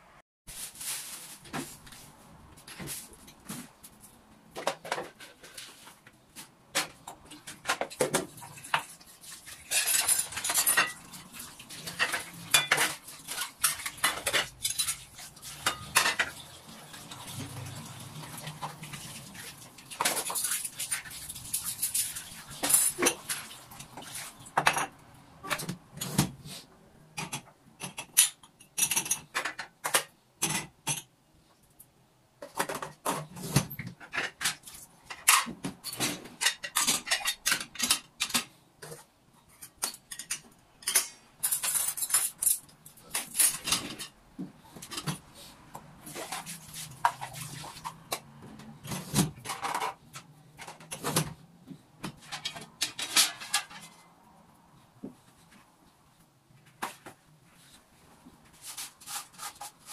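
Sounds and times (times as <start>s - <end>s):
crockery and cutlery clinking: 6.8s - 17.7s, 19.9s - 26.2s, 34.0s - 44.2s, 52.1s - 54.2s.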